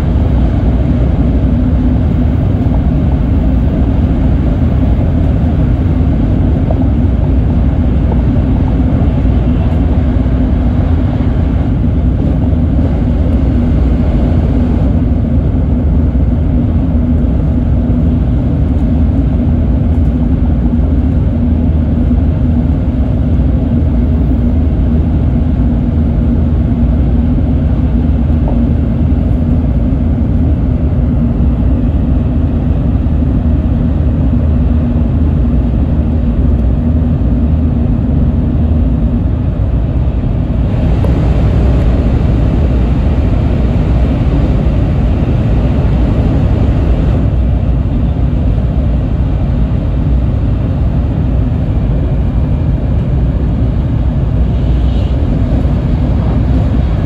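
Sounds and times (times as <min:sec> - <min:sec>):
faint constant hum: 0:00.0 - 0:57.0
train cabin rumble and roar: 0:00.0 - 0:57.0.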